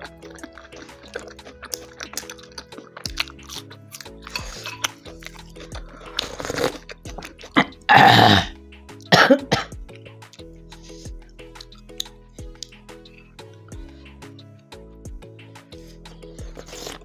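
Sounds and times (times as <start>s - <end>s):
background music: 0.0s - 17.0s
person coughing loudly: 7.6s - 8.5s, 9.1s - 9.7s.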